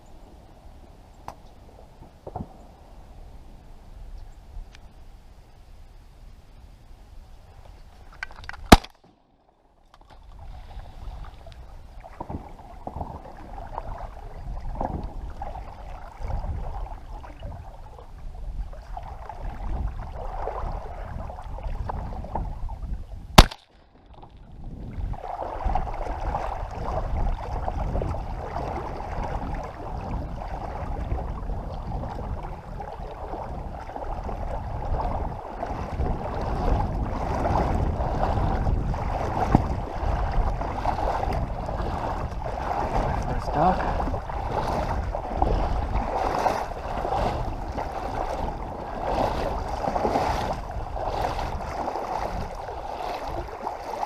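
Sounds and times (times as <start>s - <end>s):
water noise: 0.0s - 54.0s
wind: 0.0s - 54.0s
shotgun shots: 8.7s - 9.0s, 23.4s - 23.7s.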